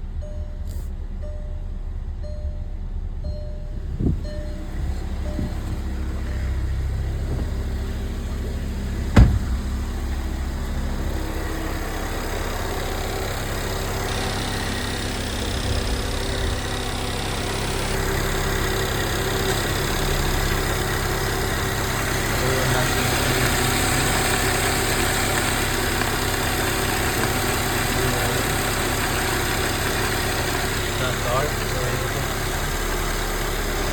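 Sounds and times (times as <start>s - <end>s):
car engine idling: 0.0s - 33.9s
sharp knock: 9.1s - 9.7s.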